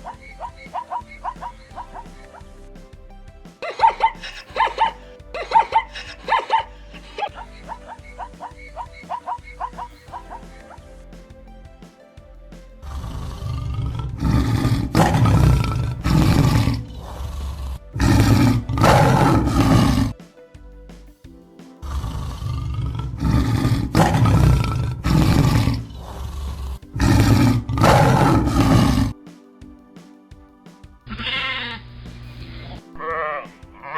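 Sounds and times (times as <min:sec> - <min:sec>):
lion roaring: 0:12.9 - 0:20.1, 0:21.9 - 0:29.1.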